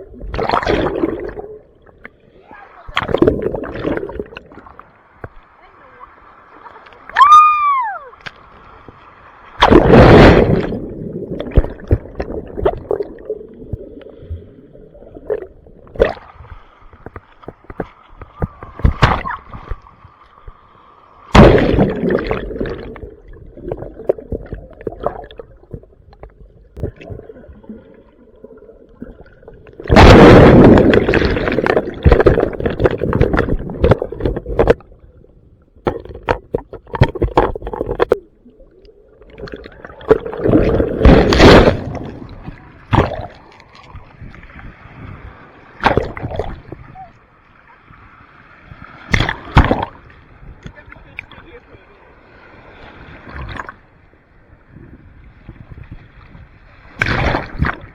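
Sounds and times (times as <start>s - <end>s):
ocean waves breaking: 26.8s - 34.8s, 39.7s - 57.9s.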